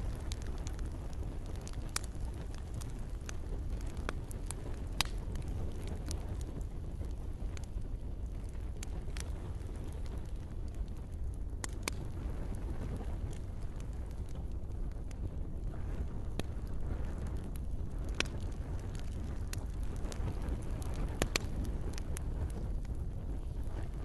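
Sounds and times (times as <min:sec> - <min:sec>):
campfire crackling: 0:00.0 - 0:24.0.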